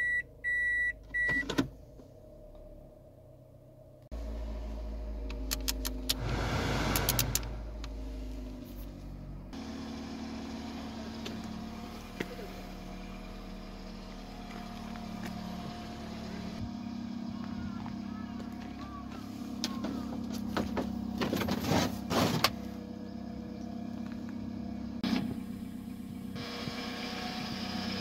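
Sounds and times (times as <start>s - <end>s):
car engine idling: 0.3s - 28.0s
sharp clicks: 5.3s - 6.2s.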